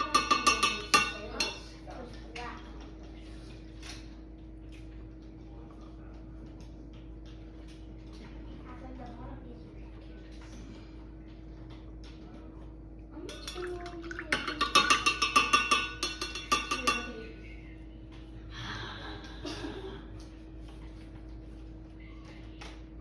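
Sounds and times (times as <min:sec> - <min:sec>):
rapid clinking taps: 0:00.0 - 0:01.8, 0:13.3 - 0:17.2.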